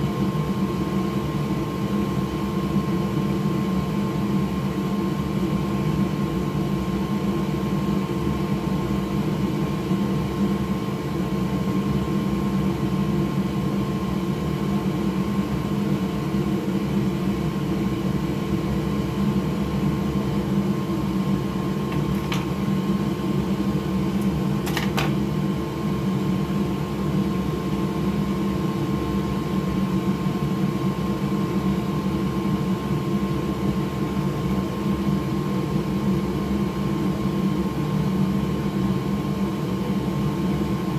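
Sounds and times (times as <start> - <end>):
electric fan motor humming: 20.4 - 27.5.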